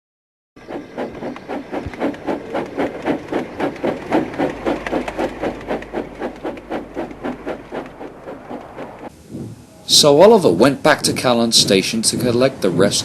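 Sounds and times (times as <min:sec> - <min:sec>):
steam locomotive chuffing: 0:00.6 - 0:09.1.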